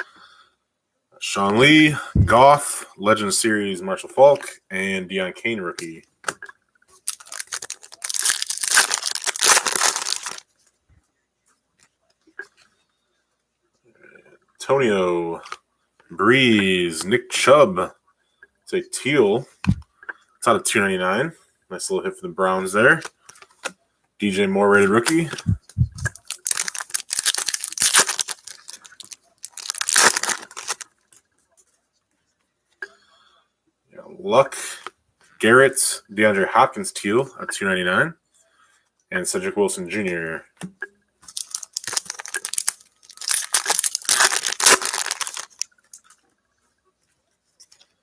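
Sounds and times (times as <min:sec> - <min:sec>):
wrapper tearing and crinkling: 0:07.0 - 0:10.5, 0:26.0 - 0:30.9, 0:41.3 - 0:46.2.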